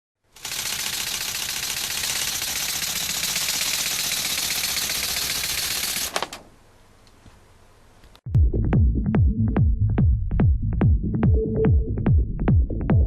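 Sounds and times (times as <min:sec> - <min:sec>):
pneumatic engine clattering: 0:00.4 - 0:06.4
electronic music: 0:08.3 - 0:13.0.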